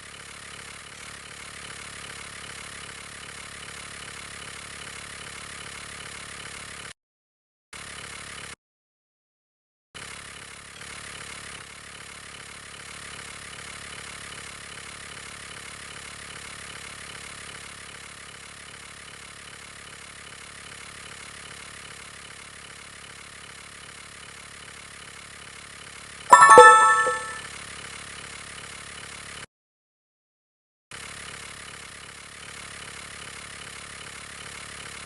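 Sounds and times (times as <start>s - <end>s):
loud brief multi-tone sound: 26.3s - 27.4s.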